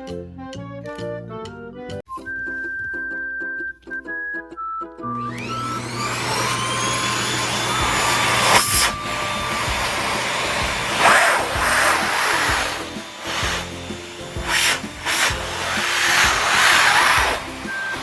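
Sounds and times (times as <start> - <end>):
vacuum cleaner running: 5.1 - 18.0.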